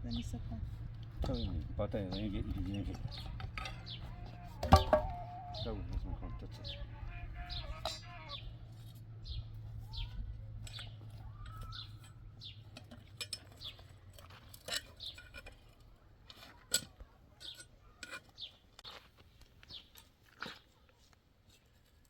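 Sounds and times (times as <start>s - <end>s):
small bird chirping: 5.1s - 14.1s, 14.7s - 15.6s, 17.4s - 19.0s.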